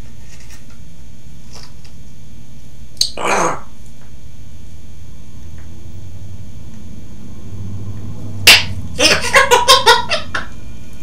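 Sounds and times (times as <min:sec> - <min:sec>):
parrot mimicking a laugh: 0:08.4 - 0:10.5.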